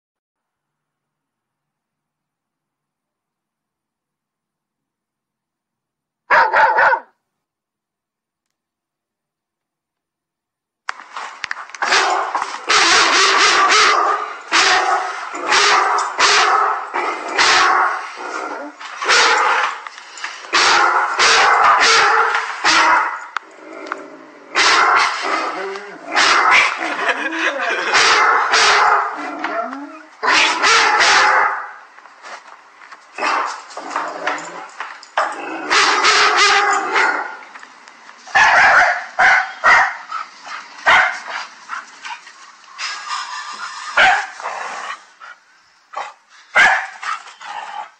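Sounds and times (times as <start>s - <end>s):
dog barking: 6.3s - 7.2s, 11.8s - 18.0s, 19.0s - 19.8s, 20.5s - 23.3s, 24.6s - 25.2s, 26.1s - 26.8s, 27.8s - 29.2s, 30.2s - 31.8s, 35.7s - 37.3s, 38.3s - 40.2s, 40.8s - 41.4s, 44.0s - 44.4s, 46.0s - 47.1s.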